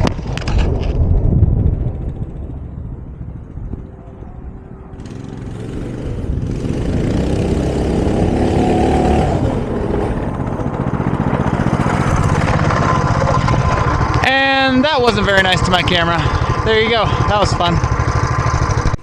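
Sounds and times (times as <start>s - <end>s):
minibike engine revving: 4.3s - 19.0s.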